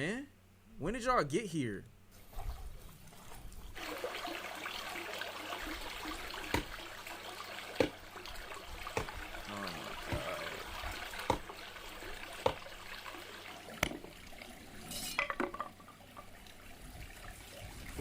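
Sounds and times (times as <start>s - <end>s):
water trickling: 2.2s - 18.0s.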